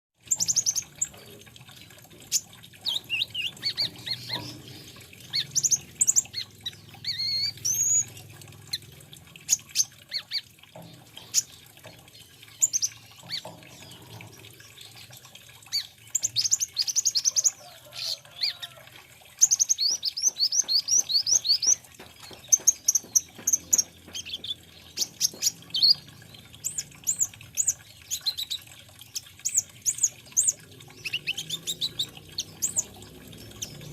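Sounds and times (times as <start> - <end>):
sunbird singing: 2.8 - 8.2.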